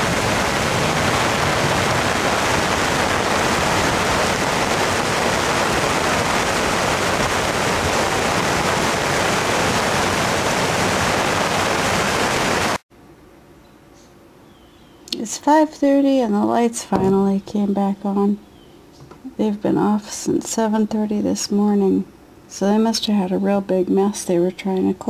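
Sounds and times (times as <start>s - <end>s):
floodwater rushing in a creek: 0.0s - 12.8s.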